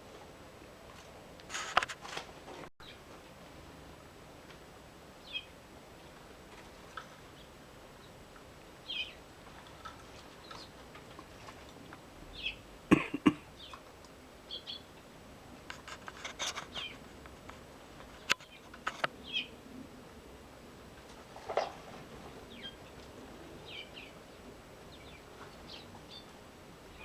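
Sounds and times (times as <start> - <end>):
birds chirping: 5.2 - 5.6, 6.9 - 11.6, 12.3 - 15.0, 16.6 - 17.1, 18.1 - 19.6, 22.2 - 27.0.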